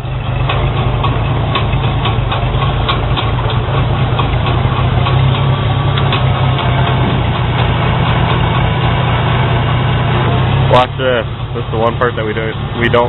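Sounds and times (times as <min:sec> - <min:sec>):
faint regular ticking: 0:00.0 - 0:09.3
tractor engine running: 0:00.0 - 0:13.0.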